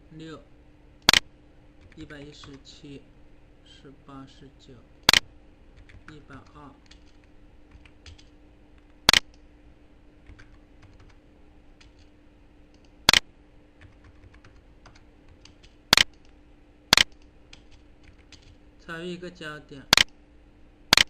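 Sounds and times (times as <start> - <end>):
faint steady hum: 0.0 - 21.0
light keyboard ticks: 5.8 - 9.4, 13.8 - 16.3
mouse double clicks: 9.1 - 9.4, 16.9 - 17.2.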